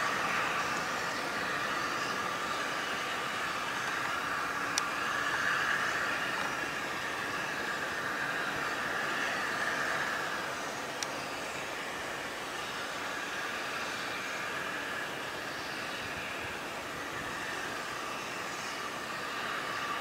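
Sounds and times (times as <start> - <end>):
train hissing: 0.0 - 20.0.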